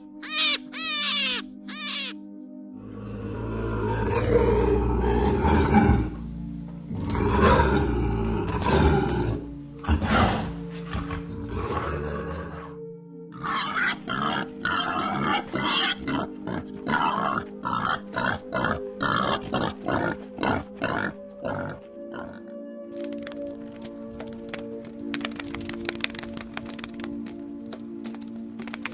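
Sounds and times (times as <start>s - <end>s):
background music: 0.0s - 28.9s
pig grunting: 2.8s - 6.2s, 6.9s - 24.3s
roar-like animal call: 2.8s - 6.2s, 6.9s - 22.6s.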